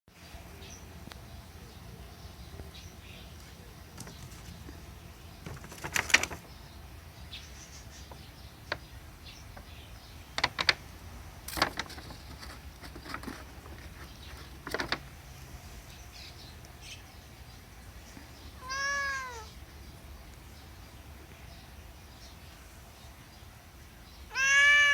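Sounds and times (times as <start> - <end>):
paper bag crinkling: 5.4 - 6.5, 11.4 - 15.1
cat meowing: 18.6 - 19.6, 24.3 - 24.9.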